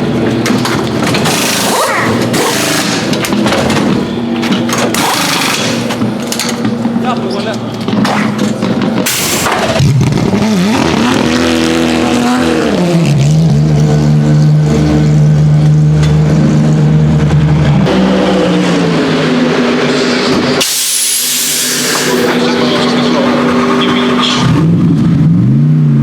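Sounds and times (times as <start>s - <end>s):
racing car engine at speed: 0.0s - 26.0s
hiss: 20.6s - 22.3s.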